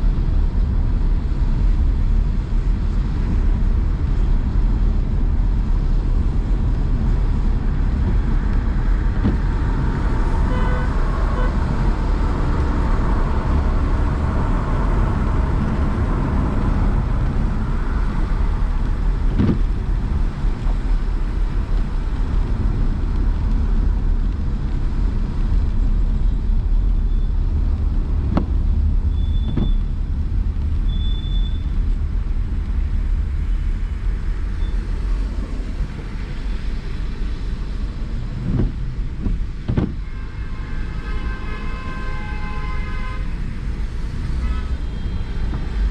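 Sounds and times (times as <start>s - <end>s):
car engine and road noise: 0.0s - 45.9s.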